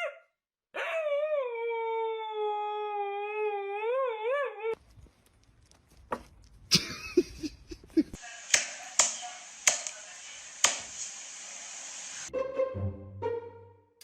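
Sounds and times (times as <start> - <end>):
dog howling: 0.8 - 4.8
loud click: 8.5 - 10.0, 10.6 - 11.1.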